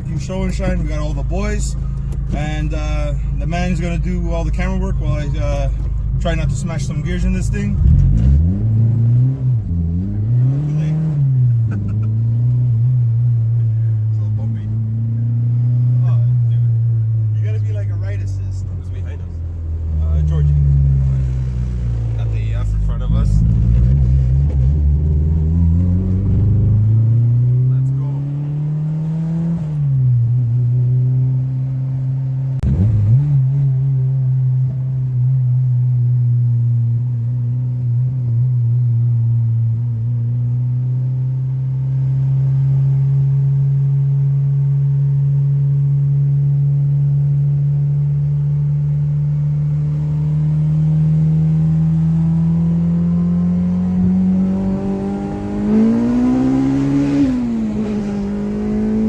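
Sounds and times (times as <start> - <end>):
car engine accelerating through gears: 0.0 - 59.0.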